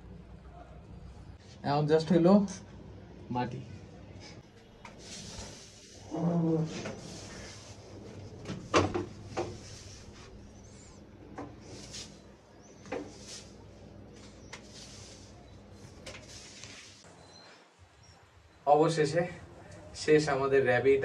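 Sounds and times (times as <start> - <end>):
rustling or scraping: 14.2 - 15.4, 16.0 - 17.1.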